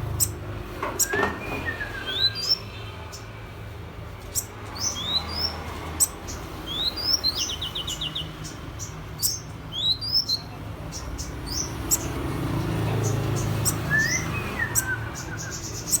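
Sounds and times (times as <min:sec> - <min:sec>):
bird singing: 0:00.1 - 0:03.3, 0:04.3 - 0:16.0.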